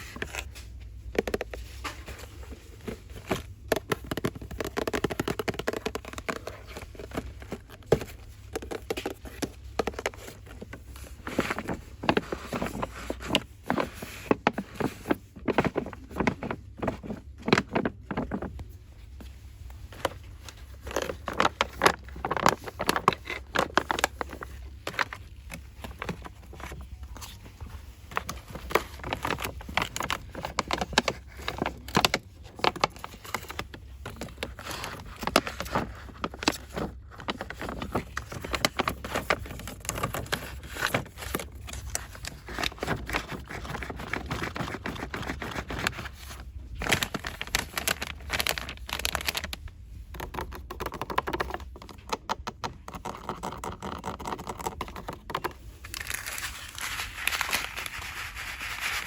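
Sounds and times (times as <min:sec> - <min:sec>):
scratching and scraping: 0:00.0 - 0:59.0
packaging crinkling: 0:19.8 - 0:52.1, 0:52.9 - 0:59.0.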